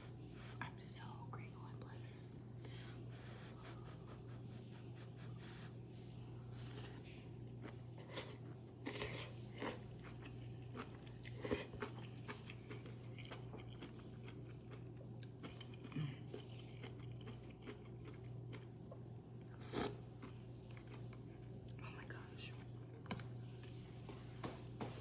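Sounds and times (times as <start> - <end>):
steady low hum: 0.0 - 25.0
chewing and biting food: 6.5 - 21.8.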